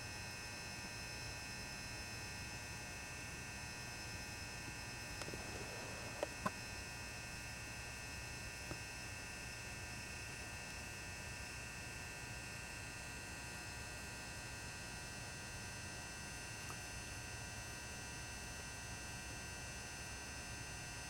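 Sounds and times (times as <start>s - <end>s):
lamp ballast humming: 4.0s - 6.9s.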